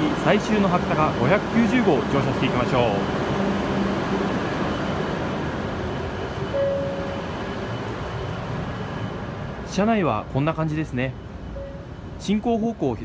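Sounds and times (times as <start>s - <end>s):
stationary train humming: 0.0s - 13.0s
short beep: 6.5s - 7.9s, 11.3s - 12.2s.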